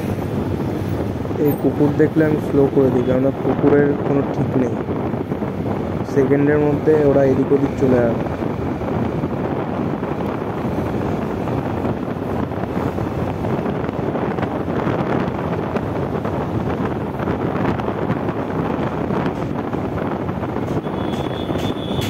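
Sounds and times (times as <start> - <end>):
motorcycle engine and road noise: 0.0 - 22.0
wind noise on microphone: 0.0 - 22.0.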